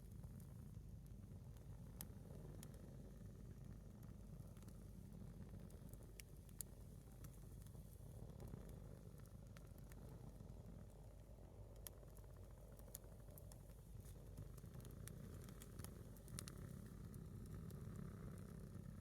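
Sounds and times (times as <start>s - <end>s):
low steady background noise: 0.0s - 19.0s
campfire crackles and pops: 5.9s - 18.6s.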